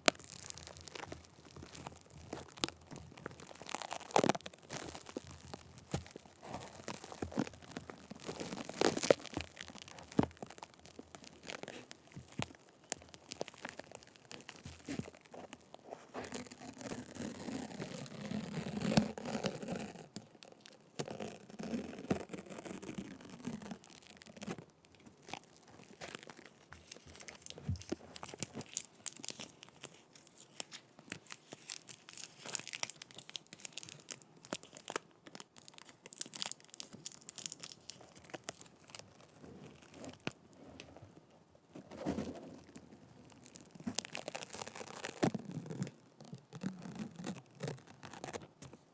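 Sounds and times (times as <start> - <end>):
sticky tape rubbing on microphone: 14.3 - 20.2, 21.0 - 24.6, 43.4 - 48.5.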